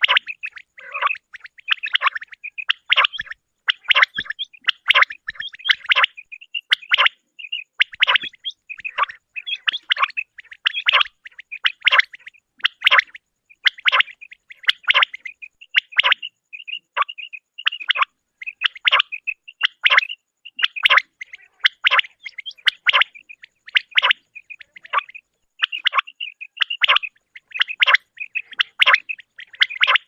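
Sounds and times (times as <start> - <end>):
quail calling: 0.0 - 30.0.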